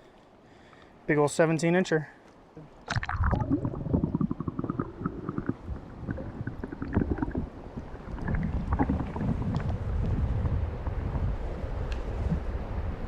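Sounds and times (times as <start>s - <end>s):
water splashes: 2.8s - 11.2s
wind buffeting microphone: 3.3s - 13.0s.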